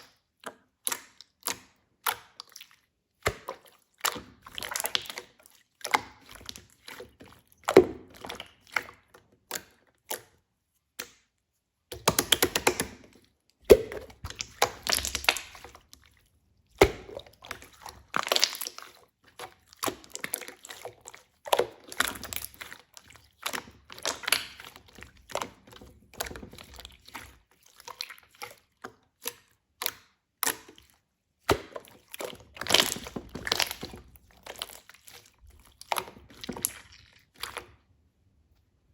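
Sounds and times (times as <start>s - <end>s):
rustling or sloshing bursts: 31.6s - 37.6s.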